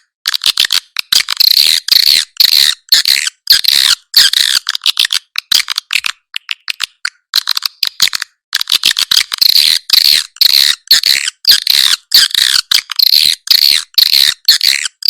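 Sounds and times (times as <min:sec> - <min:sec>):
fast clicking rattle: 0:00.2 - 0:15.0
harsh rasping bird chirps: 0:09.6 - 0:15.0.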